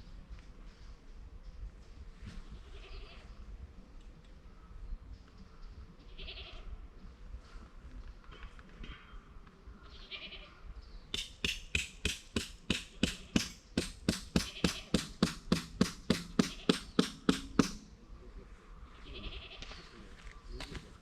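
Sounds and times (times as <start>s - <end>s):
hammer striking tent peg: 11.1s - 17.8s.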